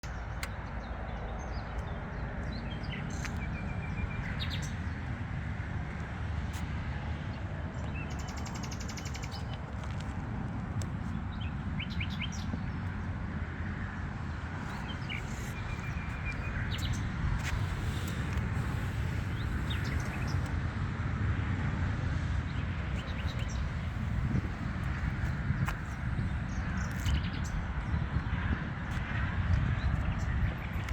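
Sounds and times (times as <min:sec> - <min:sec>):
birds chirping and trilling: 0:00.0 - 0:05.2, 0:14.5 - 0:20.5, 0:22.6 - 0:28.3.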